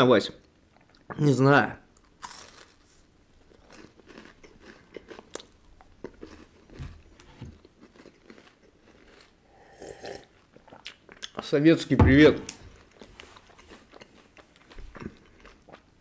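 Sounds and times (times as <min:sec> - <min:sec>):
person crunching candy: 0:02.0 - 0:11.3, 0:12.8 - 0:15.9
soft low knocks: 0:12.0 - 0:12.6.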